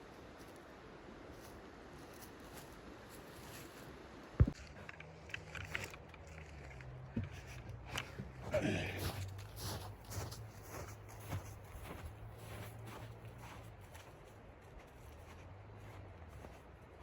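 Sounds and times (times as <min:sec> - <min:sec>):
light clicks and handling sounds: 0:04.4 - 0:08.4.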